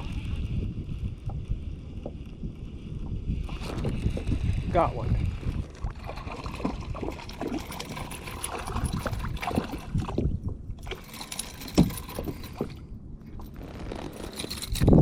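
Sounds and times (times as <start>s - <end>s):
water splashing and trickling: 3.5s - 12.9s.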